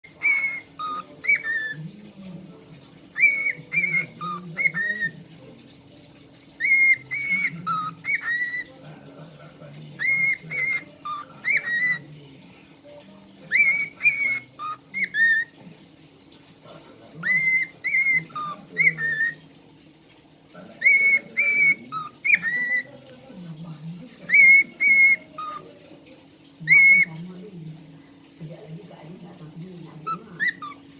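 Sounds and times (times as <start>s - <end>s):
cockatiel whistling a tune: 0.1s - 1.8s, 3.2s - 5.1s, 6.6s - 8.7s, 10.0s - 12.0s, 13.5s - 15.5s, 17.2s - 19.4s, 20.8s - 22.9s, 24.3s - 25.6s, 26.6s - 27.1s, 30.0s - 30.8s.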